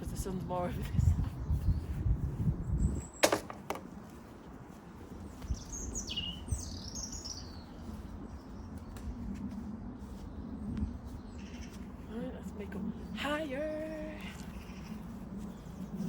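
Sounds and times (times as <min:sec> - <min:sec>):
small bird chirping: 0:05.4 - 0:09.0.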